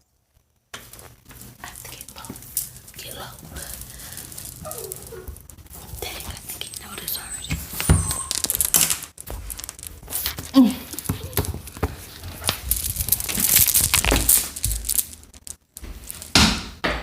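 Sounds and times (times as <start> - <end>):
rustling and crinkling: 0.0 - 16.8
short pitched squeak: 7.3 - 8.6.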